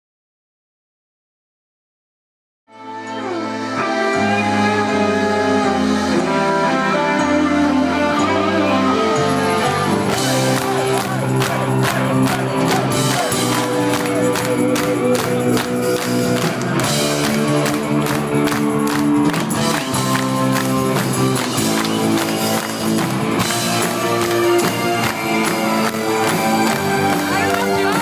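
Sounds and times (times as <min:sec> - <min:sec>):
sustained guitar or keyboard chords: 0:02.7 - 0:28.0
live rock band playing: 0:02.8 - 0:28.0
drums beating: 0:09.7 - 0:28.0.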